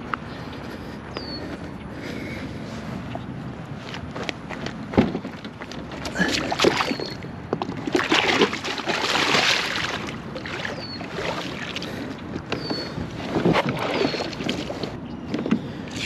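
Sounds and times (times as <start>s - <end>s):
paddle strokes splashing: 5.6s - 16.0s
water rushing: 5.9s - 7.2s, 7.8s - 12.3s.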